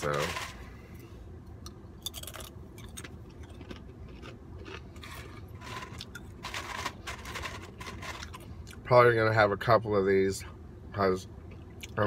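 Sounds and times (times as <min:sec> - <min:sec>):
crunching and chewing food: 0:00.0 - 0:08.9
low steady hum: 0:00.0 - 0:12.0
small clicks and scrapes: 0:05.0 - 0:08.5.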